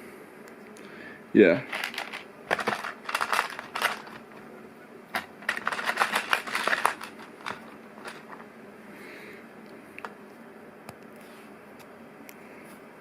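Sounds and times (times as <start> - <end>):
plastic pieces clicking together: 1.7 - 4.3, 5.1 - 8.4.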